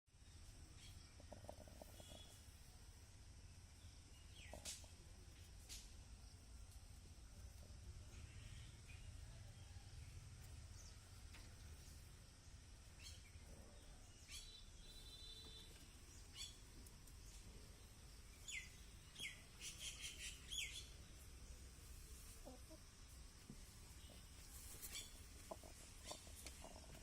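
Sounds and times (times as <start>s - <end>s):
short bird chirps: 14.2s - 16.6s.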